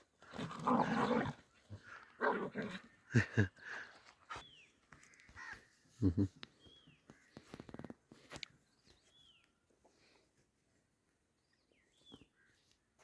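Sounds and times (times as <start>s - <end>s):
dogs snarling and growling: 0.0s - 3.4s.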